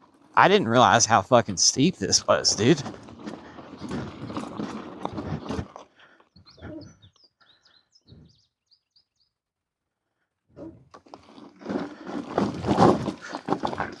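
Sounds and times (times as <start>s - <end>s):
rough noise: 0.4s - 5.8s, 11.0s - 14.0s
small bird chirping: 6.3s - 9.4s.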